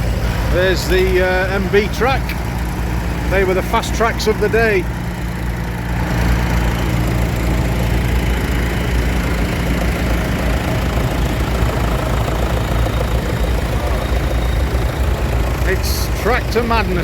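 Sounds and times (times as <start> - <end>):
tractor engines idling: 0.0 - 17.0.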